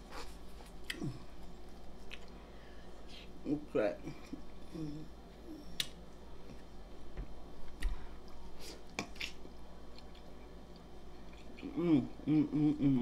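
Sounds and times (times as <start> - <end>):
person chewing sandwich: 0.0 - 3.4, 7.7 - 12.9.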